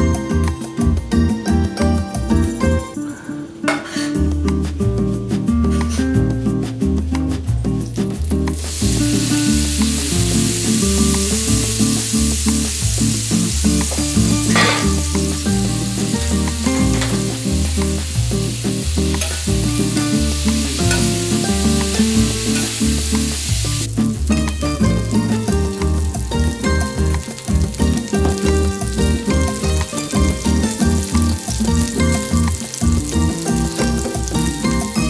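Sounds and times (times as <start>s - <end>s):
background music with bass line: 0.0s - 3.0s, 4.2s - 35.0s
vegetables sizzling on a griddle: 8.1s - 35.0s.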